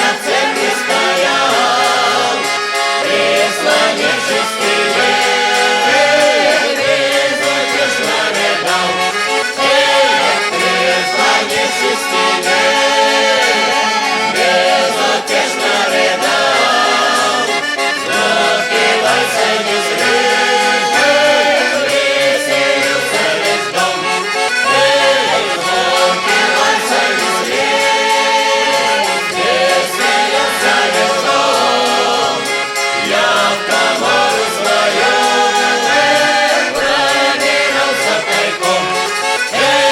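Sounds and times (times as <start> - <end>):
accordion: 0.0 - 39.9
mixed choir singing folk song: 0.0 - 39.9.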